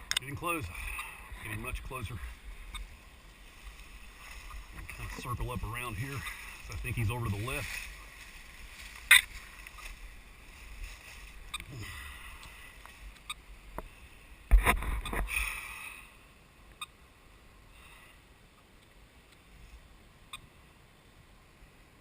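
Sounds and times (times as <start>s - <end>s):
footsteps through dry leaves: 6.0s - 11.5s.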